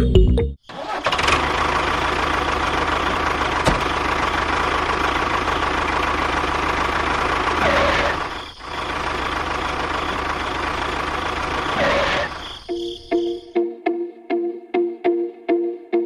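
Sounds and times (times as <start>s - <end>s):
engine running: 0.7s - 12.6s
music with plucked notes: 13.5s - 16.0s.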